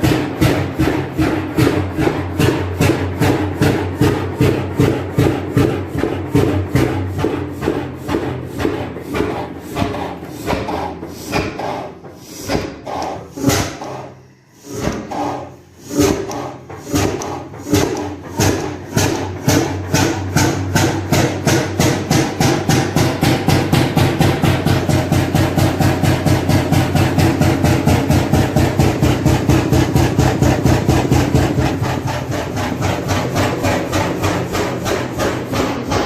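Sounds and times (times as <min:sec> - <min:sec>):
oil engine knocking: 0:00.0 - 0:36.0.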